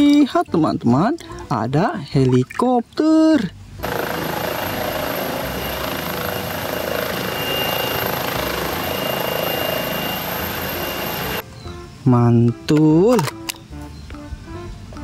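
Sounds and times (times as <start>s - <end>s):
helicopter rotor and engine: 3.8s - 11.4s.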